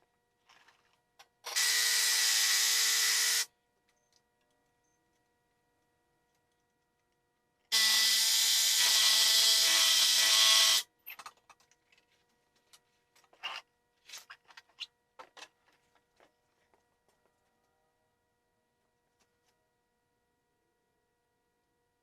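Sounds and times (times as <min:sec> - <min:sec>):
power tool running: 0:01.5 - 0:03.5, 0:07.7 - 0:10.8.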